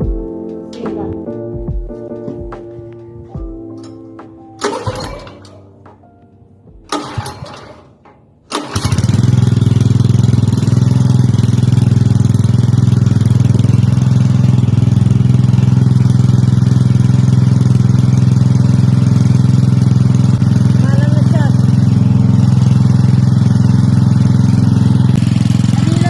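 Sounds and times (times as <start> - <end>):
water pump motor running: 4.6 - 5.6, 6.9 - 26.0
water pump motor starting attempts: 4.6 - 5.7, 6.9 - 26.0.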